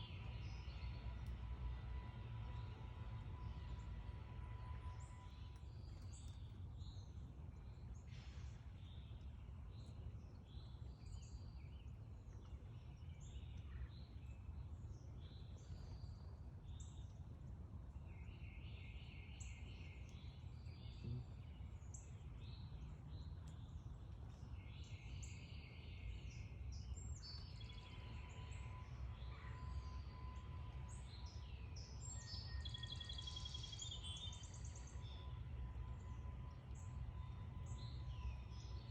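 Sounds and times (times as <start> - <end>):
bird trill: 29.2 - 35.3.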